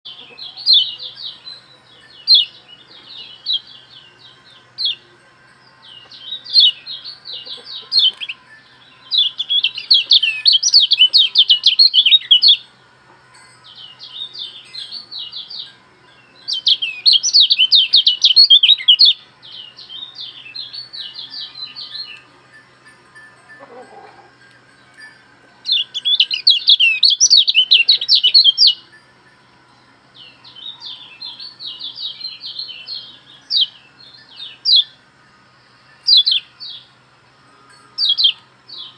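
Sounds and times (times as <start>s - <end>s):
songbird trilling: 0.1s - 5.1s, 5.7s - 12.7s, 13.6s - 22.3s, 23.5s - 28.9s, 30.2s - 35.0s, 36.0s - 36.9s, 38.0s - 38.9s
faint steady hum: 0.1s - 38.9s.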